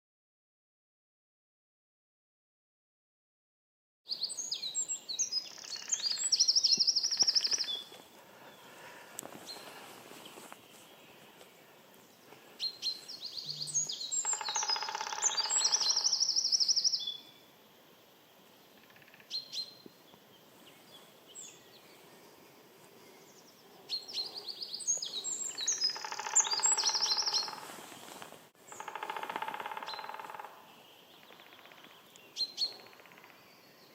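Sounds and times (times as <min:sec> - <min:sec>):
bird song with rapid trills: 0:04.1 - 0:07.9, 0:10.3 - 0:17.5, 0:18.3 - 0:33.9
single bird calls: 0:05.5 - 0:07.9, 0:12.6 - 0:17.0, 0:23.9 - 0:33.5.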